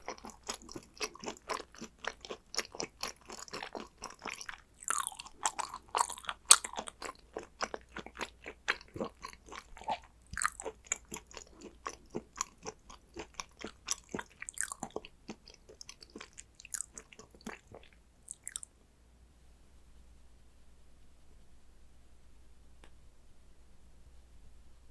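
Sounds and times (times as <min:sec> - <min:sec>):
wet chewing mouth clicks: 0:00.0 - 0:18.7.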